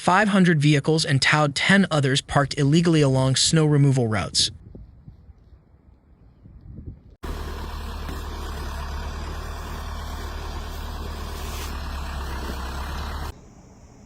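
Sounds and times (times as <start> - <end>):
vehicle engine running: 7.2 - 13.6.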